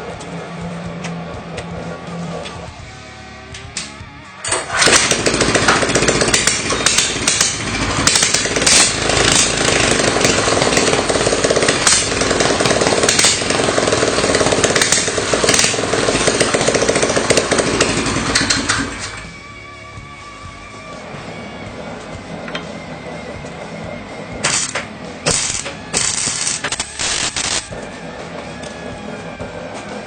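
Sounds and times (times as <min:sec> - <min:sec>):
small petrol engine revving: 0:04.5 - 0:19.4, 0:21.4 - 0:30.0.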